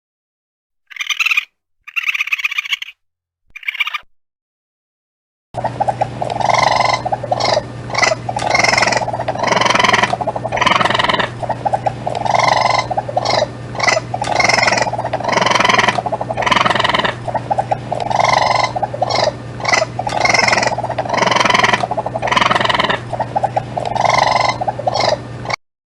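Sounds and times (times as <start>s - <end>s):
raccoon calls: 0.9s - 3.0s, 3.6s - 4.0s, 6.3s - 25.2s
steady low hum: 5.6s - 25.6s.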